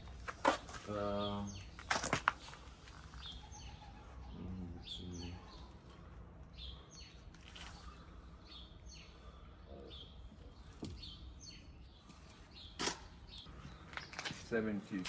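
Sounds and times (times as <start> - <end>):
small bird chirping: 2.9 - 14.5.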